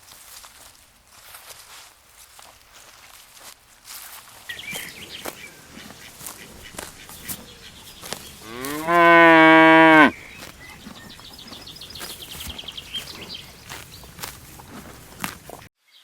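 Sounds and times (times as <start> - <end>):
cow mooing: 8.4 - 10.2.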